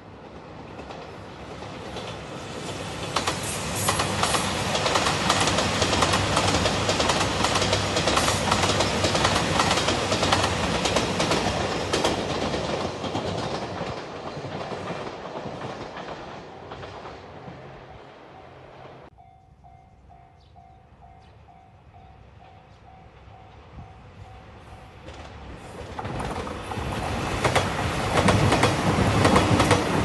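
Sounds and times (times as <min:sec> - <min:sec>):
train passing close by: 0:00.0 - 0:30.0
wheels clacking over rail joints: 0:00.2 - 0:17.7, 0:25.0 - 0:30.0.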